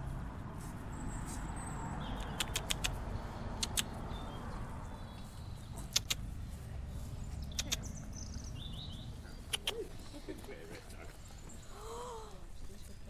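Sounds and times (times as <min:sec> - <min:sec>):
low outdoor rumble: 0:00.0 - 0:13.0
birds calling faintly: 0:00.5 - 0:13.0
sharp clicks: 0:02.2 - 0:04.0, 0:05.8 - 0:06.3, 0:07.4 - 0:08.0, 0:09.4 - 0:09.8.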